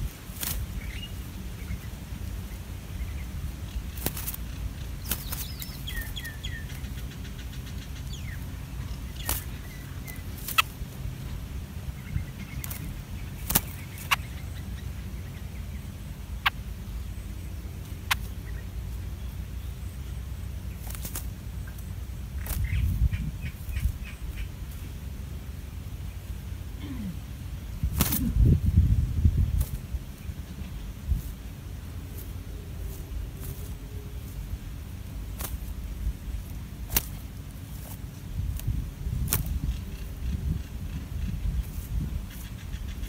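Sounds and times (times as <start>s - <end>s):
steady low rumble: 0.0s - 43.0s
high bird chirps: 0.8s - 10.8s.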